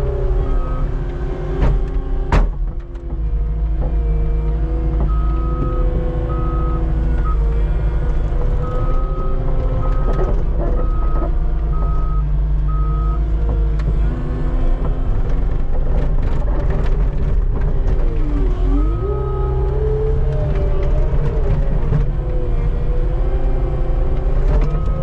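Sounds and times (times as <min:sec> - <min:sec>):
diesel engine running under load: 0:00.0 - 0:25.0
reversing alarm beeping: 0:10.8 - 0:13.2.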